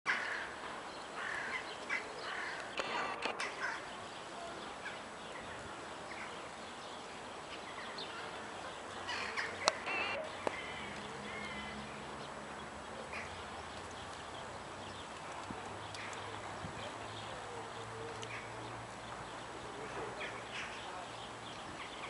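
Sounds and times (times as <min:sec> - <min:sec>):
steady background hiss: 0:00.1 - 0:22.0
sharp click: 0:02.6 - 0:03.6
short bird calls: 0:09.0 - 0:11.8.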